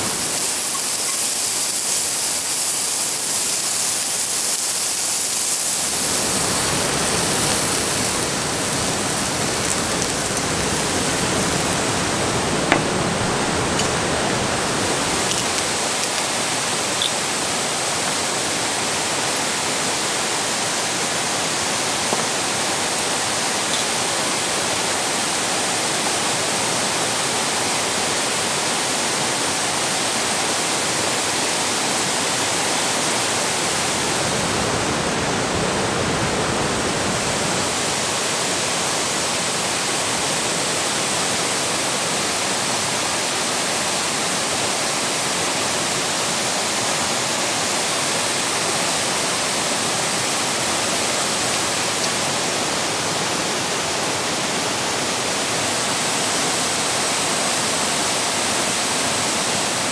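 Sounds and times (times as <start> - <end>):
meat sizzling in a skillet: 0.0 - 12.9, 14.7 - 20.6
steady rain: 0.0 - 59.9.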